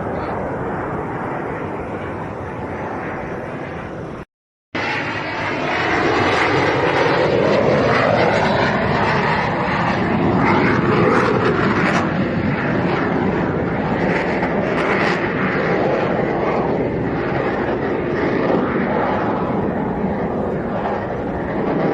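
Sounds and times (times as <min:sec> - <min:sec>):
aircraft engines flying past: 0:00.0 - 0:21.9.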